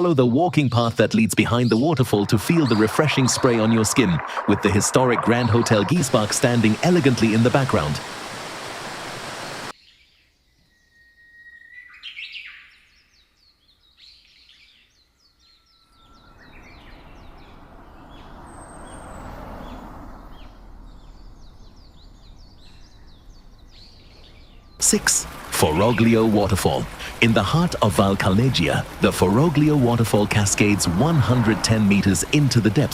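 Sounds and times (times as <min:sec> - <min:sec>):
soft rush of water: 0:01.4 - 0:09.7, 0:24.8 - 0:32.9
rush of falling water: 0:01.7 - 0:09.7, 0:24.8 - 0:32.9
small birds chirping: 0:11.6 - 0:32.9.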